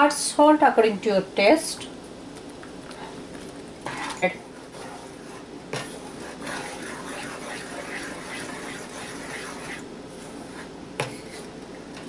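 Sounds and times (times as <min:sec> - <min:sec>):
masala bubbling and sputtering: 0:03.0 - 0:10.4.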